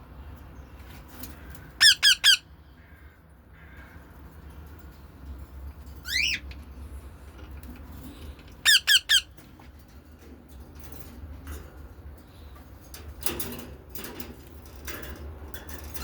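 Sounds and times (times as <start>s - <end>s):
bird squawks: 1.4s - 4.0s, 6.0s - 6.4s, 8.6s - 9.4s.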